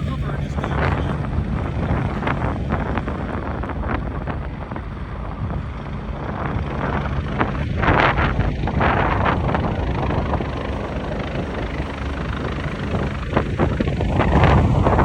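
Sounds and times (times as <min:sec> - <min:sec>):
helicopter engines and rotor: 0:00.0 - 0:15.0
wind buffeting microphone: 0:00.0 - 0:15.0.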